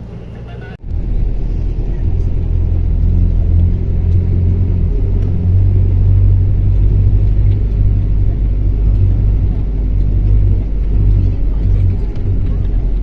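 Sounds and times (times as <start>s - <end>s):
motor vehicle rumble from on board: 0.0s - 13.0s.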